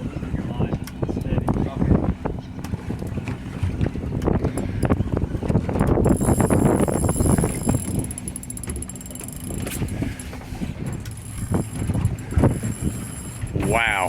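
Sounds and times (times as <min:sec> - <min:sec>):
boat engine idling: 0:00.0 - 0:14.0
wind on microphone: 0:00.0 - 0:14.0
irregular clicks and knocks: 0:07.4 - 0:12.7.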